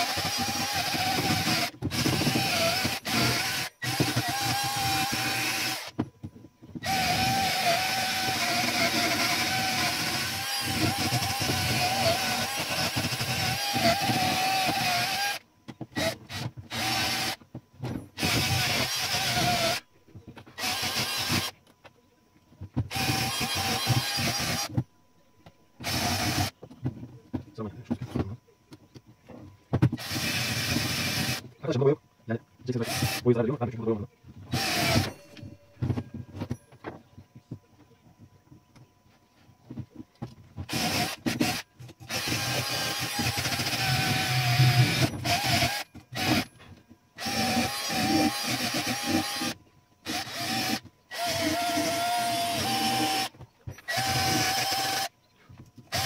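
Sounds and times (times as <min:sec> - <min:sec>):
handheld power tool whine: 0:00.0 - 0:06.0, 0:06.7 - 0:19.9, 0:20.5 - 0:21.6, 0:22.9 - 0:24.8, 0:25.8 - 0:26.6, 0:29.9 - 0:31.5, 0:32.8 - 0:33.2, 0:34.5 - 0:36.6, 0:40.6 - 0:55.1.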